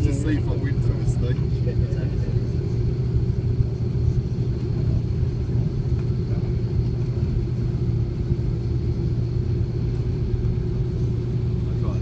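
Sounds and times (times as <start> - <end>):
airliner cabin low rumble: 0.0 - 12.0.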